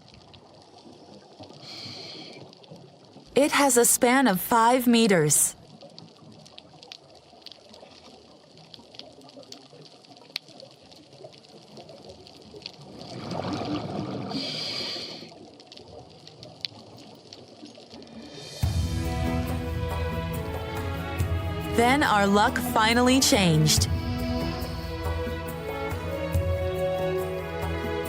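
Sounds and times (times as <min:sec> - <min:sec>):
underwater hiss: 0:01.6 - 0:02.5, 0:14.0 - 0:15.4
sharp clicks and crackle: 0:05.6 - 0:13.1, 0:15.3 - 0:18.1
exhaled air bubbles gushing: 0:12.8 - 0:15.3.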